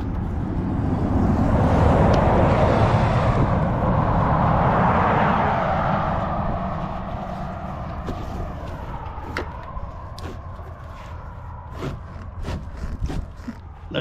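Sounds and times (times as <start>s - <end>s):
vehicle passing by: 0.0s - 14.0s.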